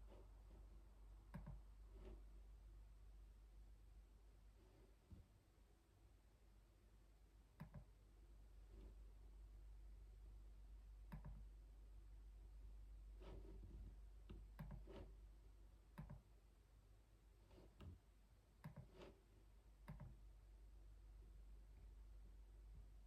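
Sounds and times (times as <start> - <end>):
faint low hum: 0.0 - 23.0
keyboard typing: 7.6 - 7.9, 11.1 - 11.4, 14.3 - 15.1, 18.6 - 19.1, 19.8 - 20.2.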